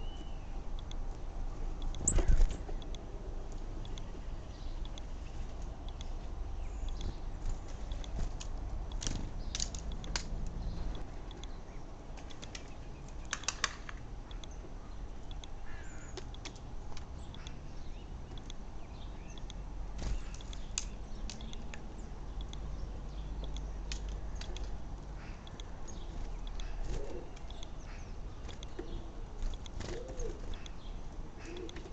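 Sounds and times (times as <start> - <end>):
faint bird chirp: 0.0 - 0.9.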